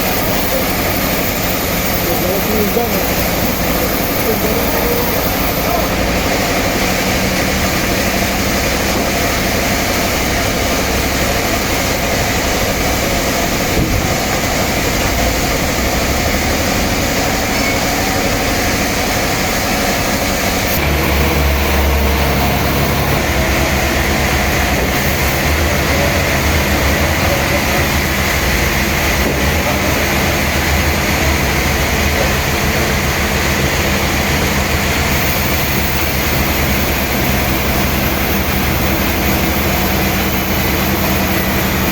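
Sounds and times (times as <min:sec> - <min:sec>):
sawmill machinery sawing log: 0:00.0 - 0:41.9
heavy low rumble: 0:04.4 - 0:35.2.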